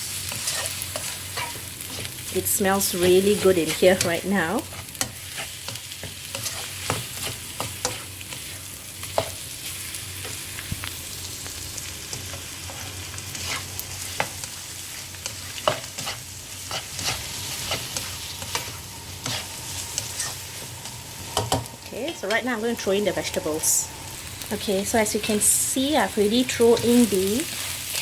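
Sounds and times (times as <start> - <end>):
food sizzling in hot oil: 0.0 - 28.0
spatula scraping and clicking on pan: 0.3 - 2.1, 4.7 - 9.4, 12.1 - 20.7.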